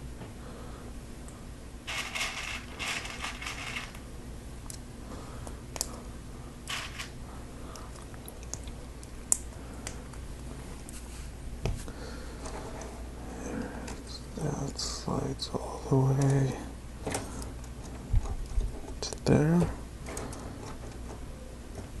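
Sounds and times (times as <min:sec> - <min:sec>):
plastic pieces rattling: 0:01.9 - 0:04.0, 0:06.7 - 0:07.1.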